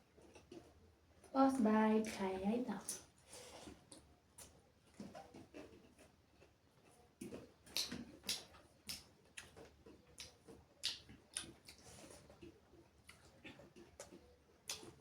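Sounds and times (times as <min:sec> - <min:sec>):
wet chewing mouth sounds: 0:07.2 - 0:15.0.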